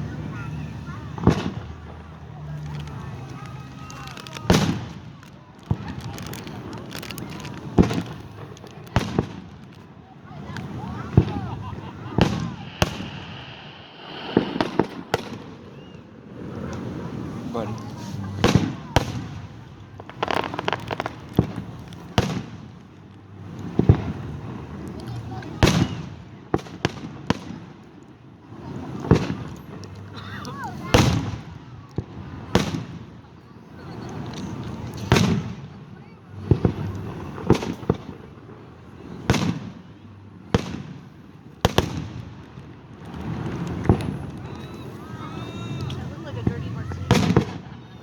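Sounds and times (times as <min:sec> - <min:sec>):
fireworks crackling: 0:00.0 - 0:48.0
fireworks booming: 0:10.4 - 0:22.8, 0:45.7 - 0:48.0.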